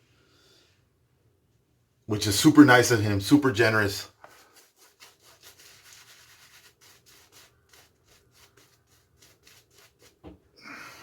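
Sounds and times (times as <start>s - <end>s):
razor scraping on face: 4.2s - 10.2s.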